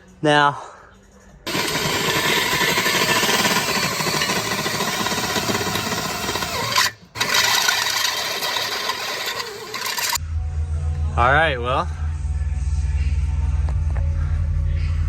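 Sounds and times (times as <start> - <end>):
power tool drilling sheet metal: 1.5 - 10.2.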